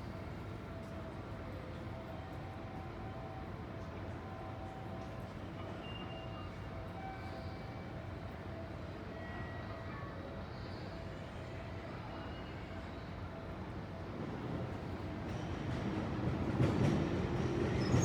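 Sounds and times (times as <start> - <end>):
train rumbling slowly: 13.8 - 18.0.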